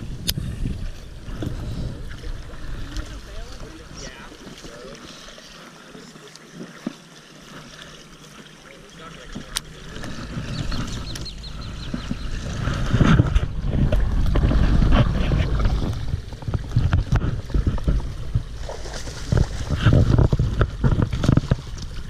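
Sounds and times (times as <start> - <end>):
wind buffeting the microphone: 0.0 - 4.2, 9.6 - 22.0.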